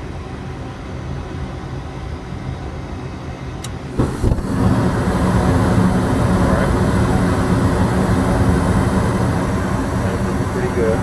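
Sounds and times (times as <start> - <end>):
furnace mechanical hum: 0.0 - 11.0
furnace ignition click: 3.6 - 11.0
burners lighting whoosh: 3.9 - 11.0.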